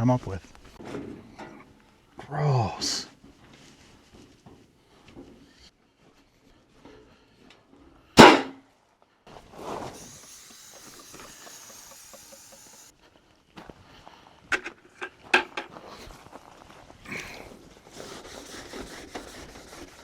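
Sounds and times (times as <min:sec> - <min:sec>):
loud sharp bang: 0:08.2 - 0:08.6
steady hiss: 0:10.0 - 0:12.9.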